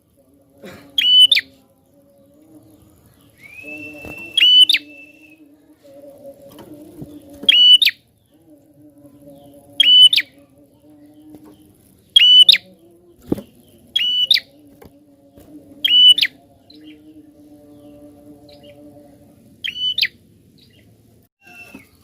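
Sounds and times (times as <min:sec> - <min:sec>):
low steady hum: 0:00.0 - 0:22.0
bird high whistled calls: 0:03.4 - 0:05.4, 0:12.2 - 0:12.6, 0:19.6 - 0:20.8, 0:21.4 - 0:22.0.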